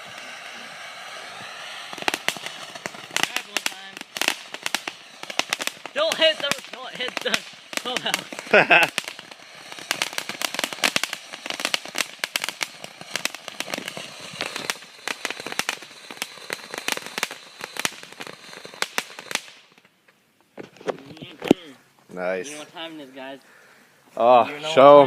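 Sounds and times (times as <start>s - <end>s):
firework crackling: 0.0s - 19.9s.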